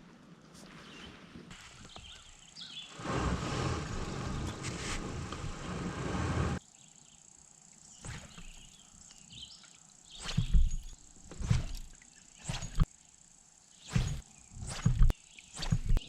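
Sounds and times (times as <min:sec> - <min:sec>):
steady rushing noise: 0:02.9 - 0:06.6
faint bird chirps: 0:06.7 - 0:16.0.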